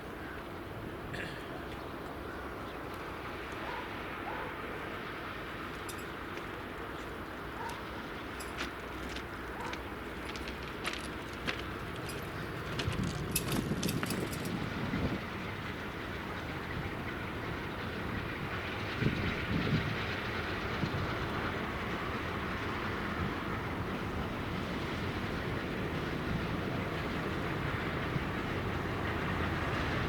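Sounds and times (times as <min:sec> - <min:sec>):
train rumbling on track: 0:00.0 - 0:30.0
wheels knocking over rail joints: 0:08.6 - 0:14.6.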